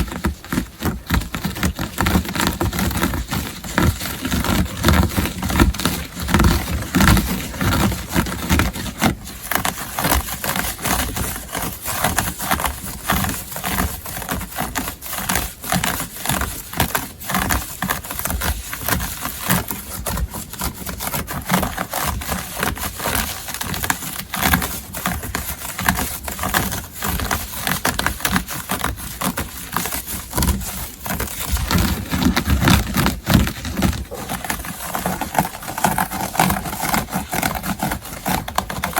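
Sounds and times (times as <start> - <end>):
scratching on textile: 0.0 - 38.9.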